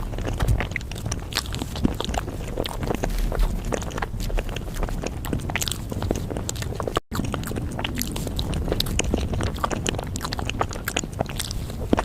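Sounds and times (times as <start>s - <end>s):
biting and chewing: 0.0s - 12.0s
wet mouth clicks: 0.0s - 12.0s.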